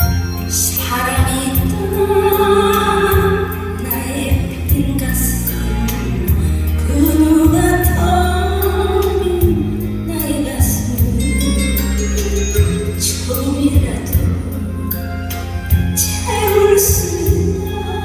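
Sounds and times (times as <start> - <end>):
backing track with bass and drums: 0.0 - 18.0
person singing long notes: 0.7 - 15.0.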